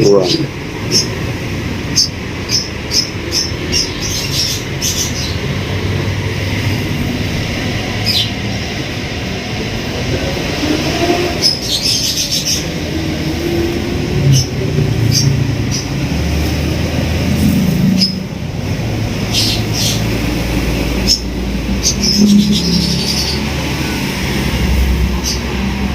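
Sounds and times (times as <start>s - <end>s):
low mechanical rumble: 11.5s - 25.9s
faint wavering squeal: 21.9s - 24.0s.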